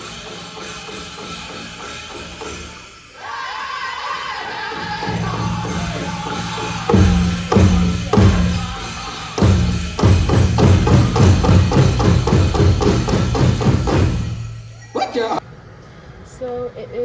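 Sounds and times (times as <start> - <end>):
big drum beating: 4.8 - 14.8.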